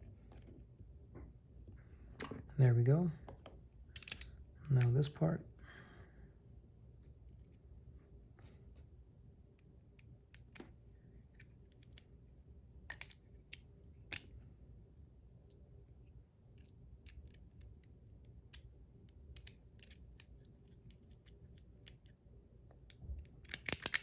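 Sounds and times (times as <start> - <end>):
metal parts clicking and tapping: 4.0 - 5.0, 23.4 - 24.0.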